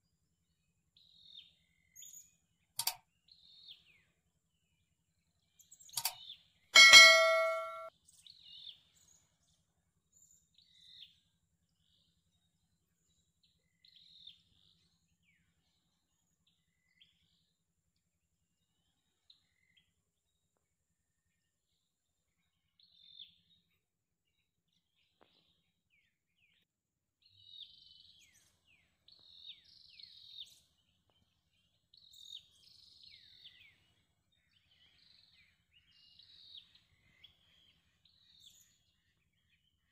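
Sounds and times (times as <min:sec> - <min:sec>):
short click: 0:02.8 - 0:03.0
loud metallic ding: 0:06.8 - 0:07.9.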